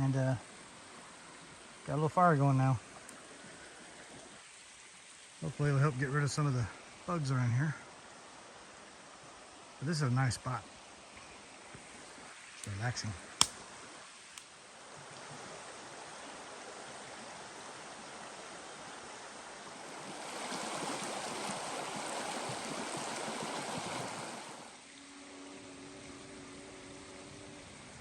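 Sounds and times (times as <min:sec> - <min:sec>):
stream running: 0:00.0 - 0:28.0
sharp click: 0:13.4 - 0:13.6.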